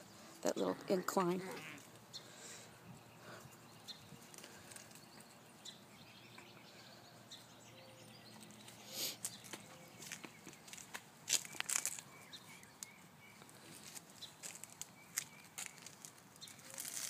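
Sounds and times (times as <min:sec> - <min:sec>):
puppies rustling in dry leaves: 0:13.5 - 0:17.0.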